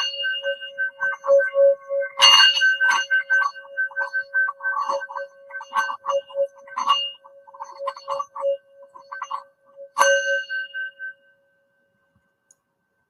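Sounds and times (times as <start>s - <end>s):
singing bowl ringing: 2.1s - 11.6s.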